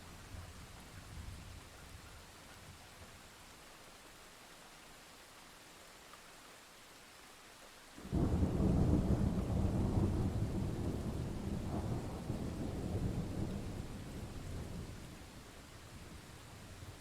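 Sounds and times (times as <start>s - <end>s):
steady rain: 0.0s - 17.0s
thunderclap rolling into rumble: 8.1s - 14.9s.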